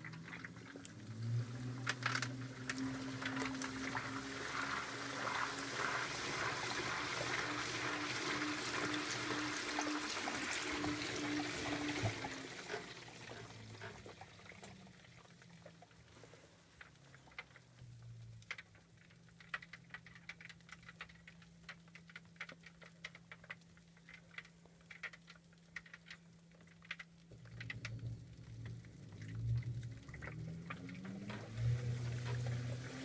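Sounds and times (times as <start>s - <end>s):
washer motor humming: 0.0s - 15.0s
water drips in washer tub: 0.0s - 33.0s.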